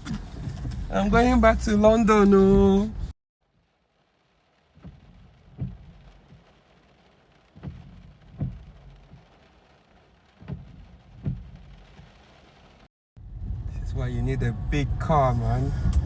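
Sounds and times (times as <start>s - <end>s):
car driving through water rumble: 0.0s - 16.0s
dull thumps: 4.8s - 6.5s, 7.5s - 9.4s, 10.3s - 12.2s.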